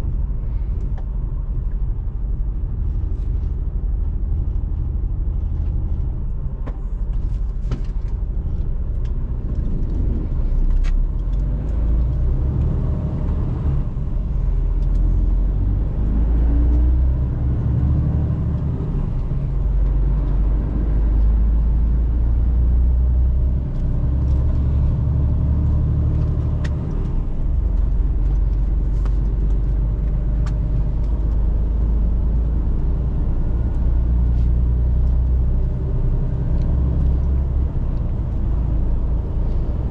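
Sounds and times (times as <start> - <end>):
truck engine and road drone: 0.0 - 39.9.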